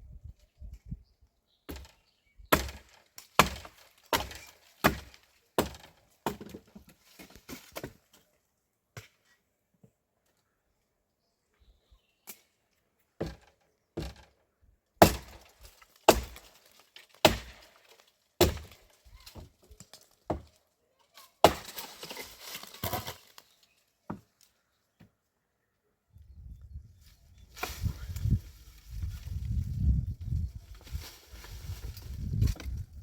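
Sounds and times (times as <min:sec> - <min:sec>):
stones scraping and rattling: 0:21.7 - 0:23.5.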